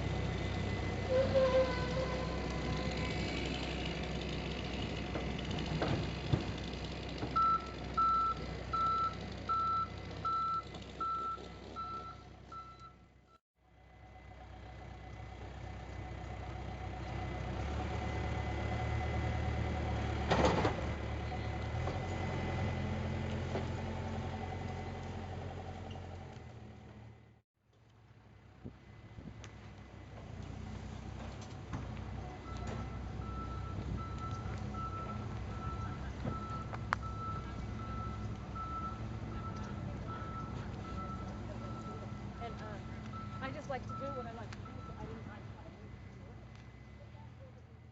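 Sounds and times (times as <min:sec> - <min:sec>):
engine running: 0:00.0 - 0:47.9
reversing alarm beeping: 0:07.4 - 0:13.4, 0:32.4 - 0:45.4.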